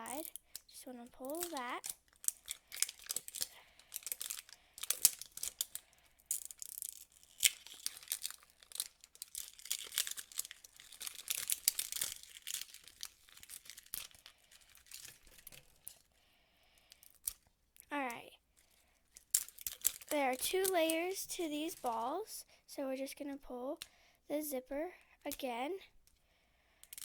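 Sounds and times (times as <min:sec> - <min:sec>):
plastic tearing and crinkling: 0:00.0 - 0:16.1, 0:17.0 - 0:17.5, 0:18.6 - 0:22.0.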